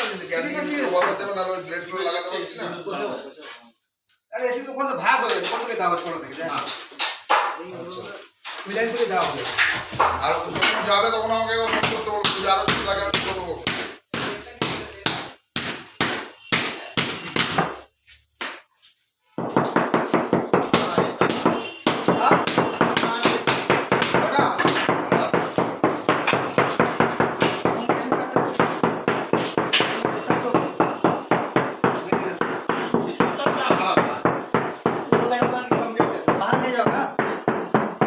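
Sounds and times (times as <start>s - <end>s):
fast hammer blows on tile: 9.2s - 18.6s, 19.4s - 38.0s.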